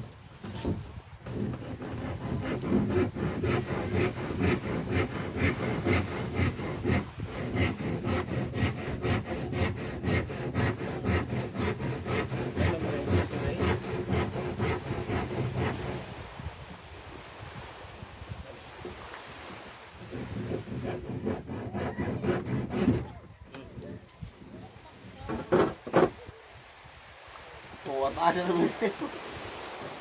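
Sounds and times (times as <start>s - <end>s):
hand saw cutting wood: 0.6s - 16.2s, 20.0s - 23.2s.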